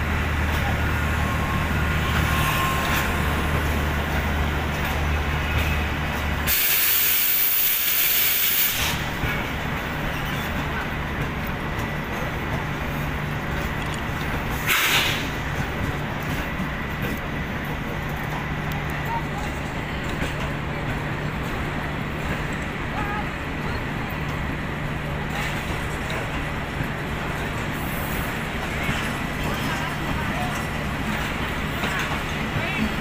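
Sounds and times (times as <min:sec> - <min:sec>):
train wheels rumbling on track: 0:00.0 - 0:33.0
loud hiss: 0:06.4 - 0:09.2, 0:14.6 - 0:15.4.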